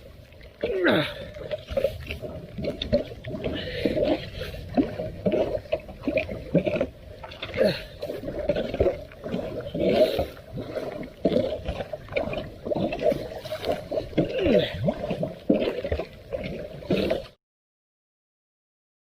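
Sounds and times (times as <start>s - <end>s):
water gurgling down a drain: 0.0s - 17.4s.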